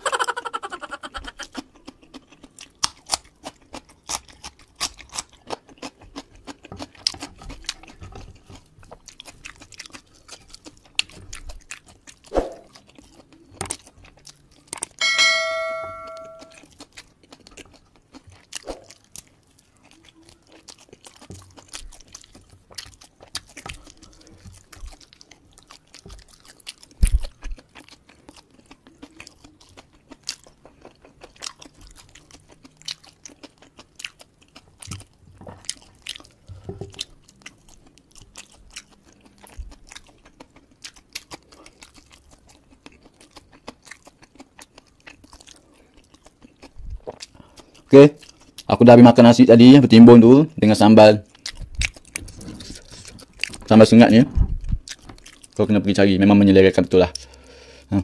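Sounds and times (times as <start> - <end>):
chewing and crunching: 0.0 - 15.0, 16.3 - 58.0
bell-like chime: 15.0 - 16.5.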